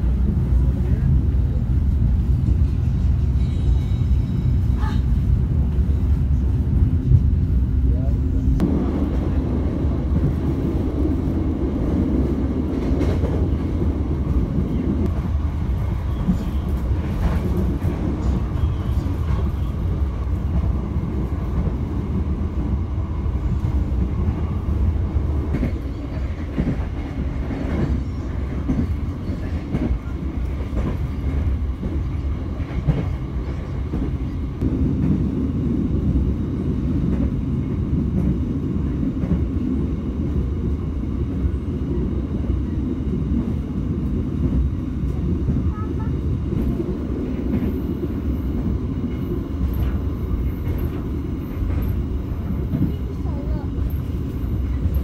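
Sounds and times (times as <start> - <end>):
train wheels rumbling on rails: 0.0 - 55.0
rail joint clicks: 23.5 - 35.2, 43.4 - 55.0.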